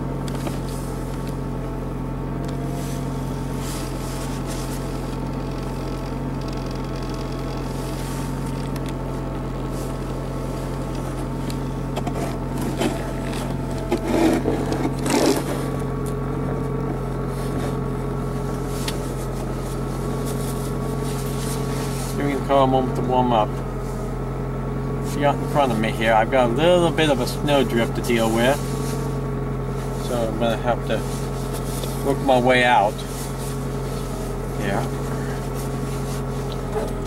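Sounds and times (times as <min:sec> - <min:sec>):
car engine idling: 0:00.0 - 0:37.0
handling knocks and rustles: 0:07.9 - 0:22.2.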